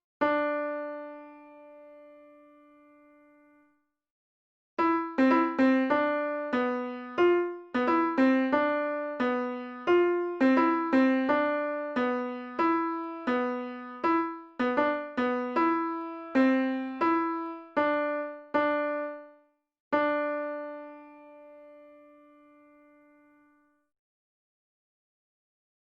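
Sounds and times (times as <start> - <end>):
keyboard melody: 4.8 - 19.4, 20.0 - 23.4.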